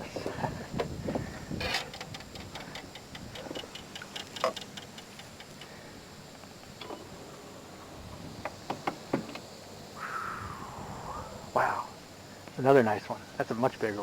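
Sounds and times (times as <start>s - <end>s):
scattered clicks: 1.8s - 5.8s.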